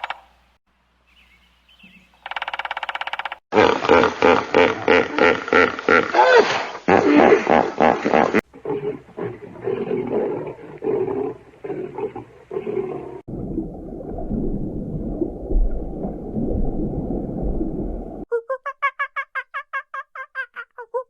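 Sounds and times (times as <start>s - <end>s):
rough continuous animal sound: 0.0s - 5.2s, 7.0s - 13.3s.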